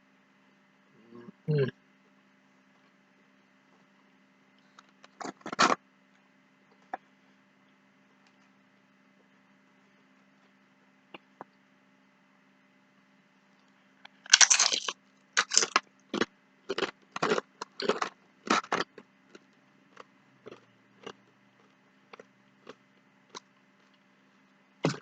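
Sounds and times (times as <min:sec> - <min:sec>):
chewing crunchy chips: 0:14.1 - 0:24.0.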